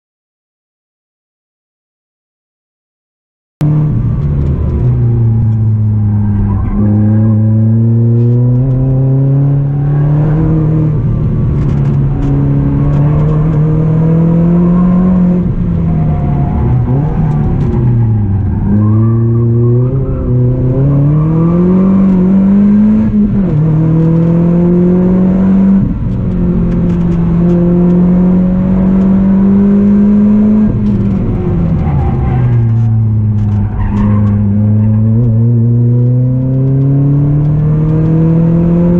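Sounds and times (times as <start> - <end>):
car engine accelerating: 3.6 - 38.9.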